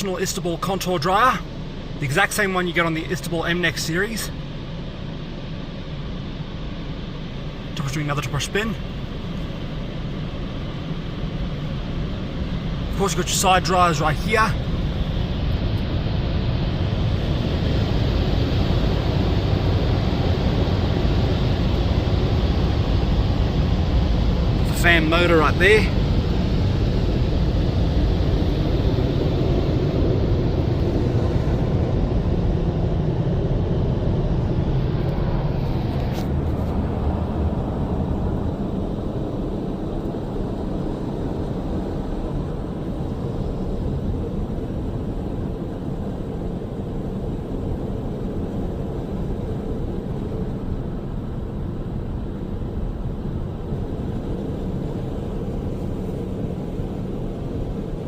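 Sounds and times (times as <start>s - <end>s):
car wash air dryers blowing: 0.0s - 58.0s.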